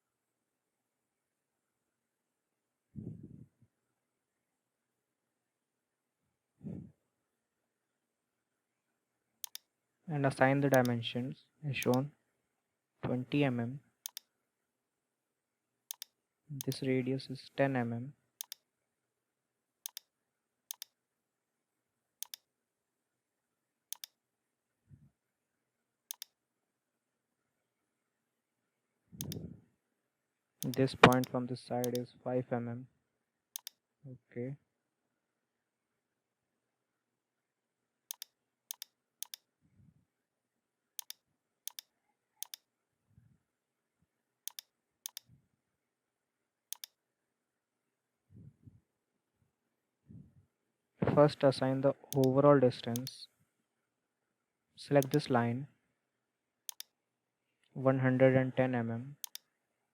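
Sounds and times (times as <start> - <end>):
computer mouse button clicking: 9.4 - 9.6, 11.8 - 12.0, 15.9 - 16.8, 19.9 - 20.1, 20.7 - 20.9, 22.2 - 22.4, 23.9 - 24.1, 26.1 - 26.3, 29.2 - 29.4, 30.6 - 32.0, 33.6 - 33.8, 38.1 - 39.4, 41.0 - 42.6, 44.5 - 45.2, 46.7 - 46.9, 55.0 - 55.3, 56.7 - 56.9, 59.2 - 59.4.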